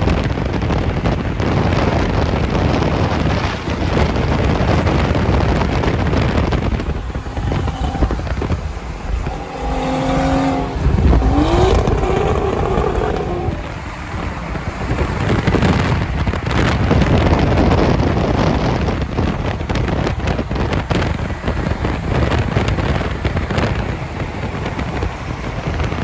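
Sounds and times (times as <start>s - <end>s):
vehicle noise: 0.0s - 26.0s
wind rushing over microphone: 0.0s - 26.0s
car engine rising in pitch: 5.0s - 16.7s.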